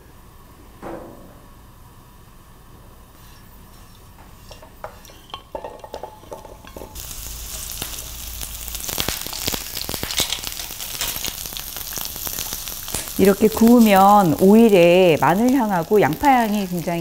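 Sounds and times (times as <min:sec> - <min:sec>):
shallots sizzling in hot oil: 0:04.4 - 0:17.0.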